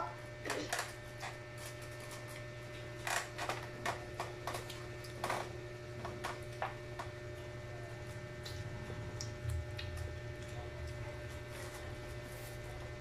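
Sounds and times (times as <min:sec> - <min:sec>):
steady low hum: 0:00.0 - 0:13.0
chewing and lip smacking: 0:08.1 - 0:11.5.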